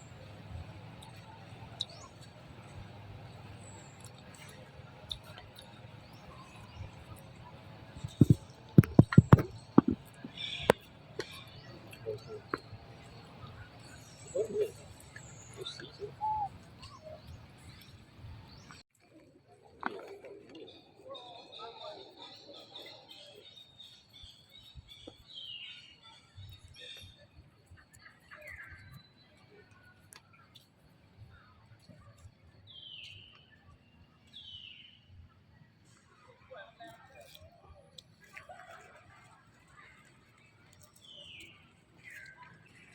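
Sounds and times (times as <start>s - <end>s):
low steady background noise: 0.0s - 42.9s.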